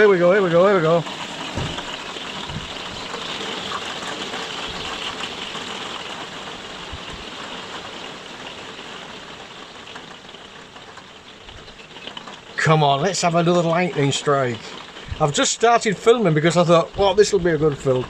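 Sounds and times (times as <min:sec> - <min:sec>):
heavy rain pouring: 0:00.0 - 0:18.0
low thuds: 0:01.5 - 0:03.4.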